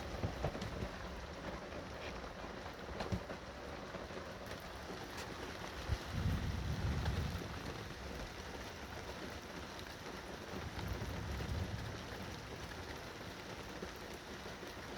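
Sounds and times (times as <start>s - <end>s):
steady rain falling: 0.0s - 14.9s.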